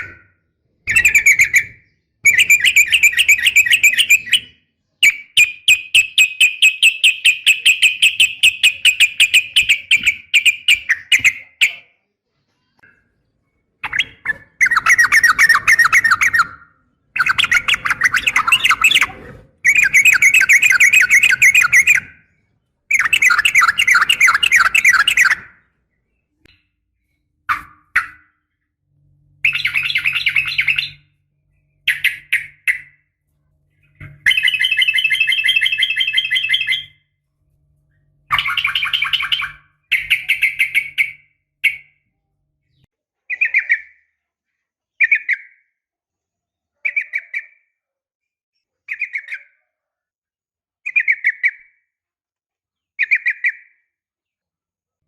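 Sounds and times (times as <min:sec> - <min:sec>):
bulbul trilled song: 0:00.0 - 0:11.9, 0:13.8 - 0:37.1, 0:37.9 - 0:42.1.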